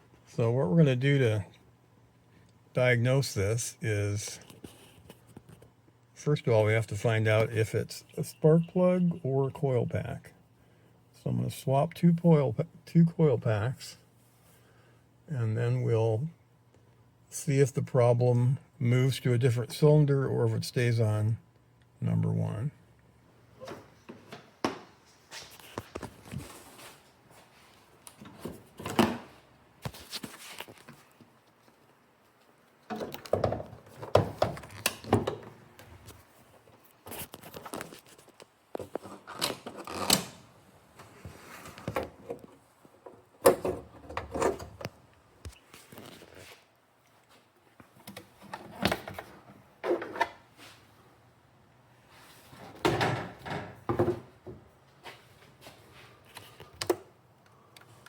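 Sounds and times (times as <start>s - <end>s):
clunks and knocks of tools: 32.9s - 35.6s, 52.6s - 54.6s.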